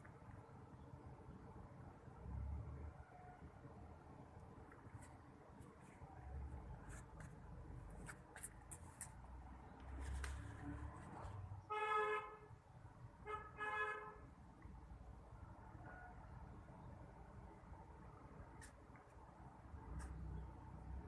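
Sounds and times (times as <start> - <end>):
vehicle horn honking: 11.7 - 12.5, 13.3 - 14.2.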